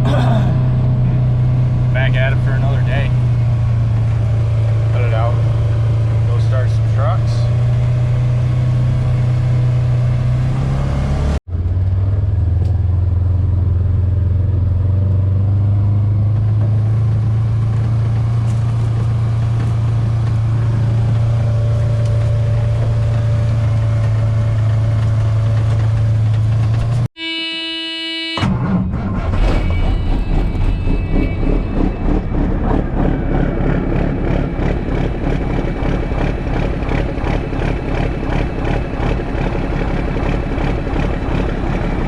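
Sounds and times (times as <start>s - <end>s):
truck engine idling: 28.5s - 42.0s
sustained held tone: 29.4s - 33.6s.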